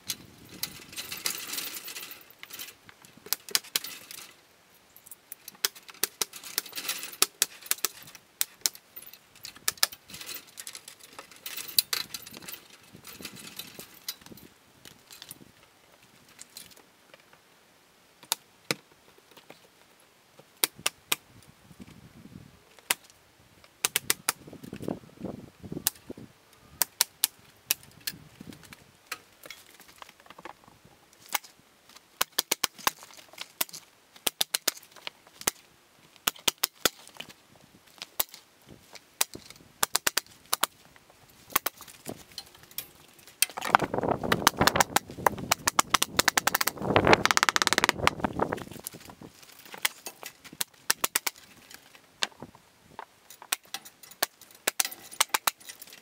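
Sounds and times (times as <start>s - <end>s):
sharp knocks and clicks: 43.4s - 48.2s.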